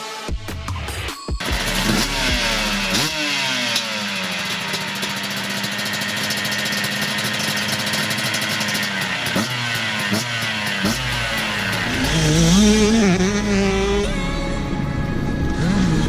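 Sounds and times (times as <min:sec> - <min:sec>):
dirt bike engines revving: 0:01.4 - 0:16.0.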